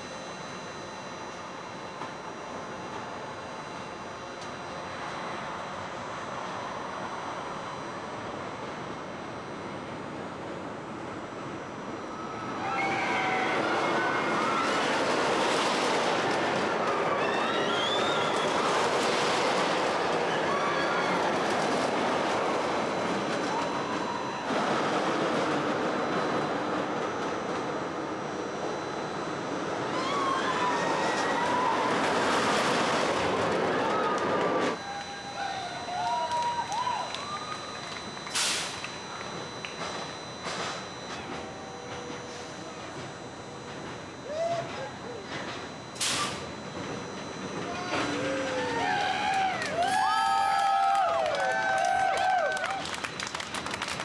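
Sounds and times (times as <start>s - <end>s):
steady background noise: 0.0s - 54.0s
people screaming: 12.2s - 15.5s, 16.6s - 18.9s, 19.9s - 22.0s, 23.3s - 24.5s, 29.8s - 32.5s, 33.5s - 38.0s, 44.2s - 45.3s, 47.6s - 53.0s
roller coaster rushing: 12.2s - 28.4s, 29.4s - 43.0s, 43.8s - 54.0s.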